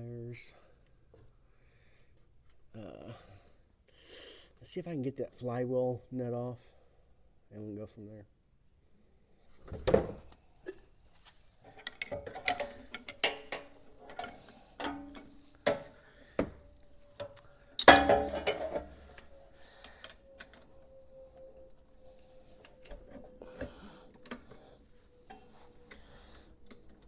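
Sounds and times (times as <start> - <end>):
loud metallic clank: 17.8 - 18.9
metal tools clinking on engine: 17.8 - 19.2.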